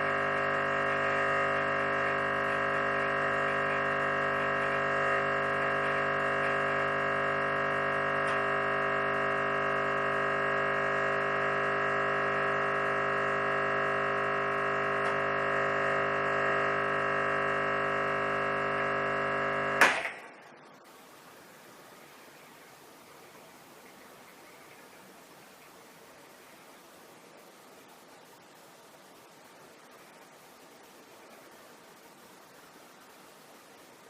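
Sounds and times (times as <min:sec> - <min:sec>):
espresso machine pump humming: 0:00.0 - 0:20.0.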